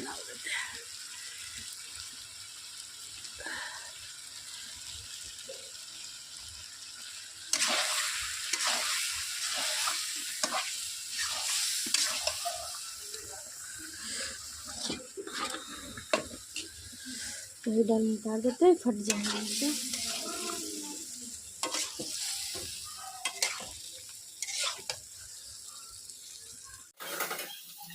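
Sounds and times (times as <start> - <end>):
loud sizzle in frying pan: 0.0 - 27.9
spoon scraping the pan: 7.5 - 12.8, 14.1 - 17.5, 19.0 - 20.7, 21.6 - 23.8, 24.4 - 25.0.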